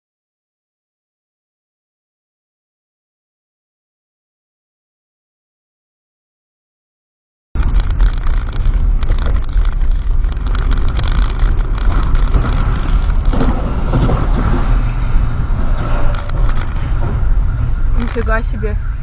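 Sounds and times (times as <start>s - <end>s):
car engine: 7.6s - 19.0s
road rumble: 7.6s - 19.0s.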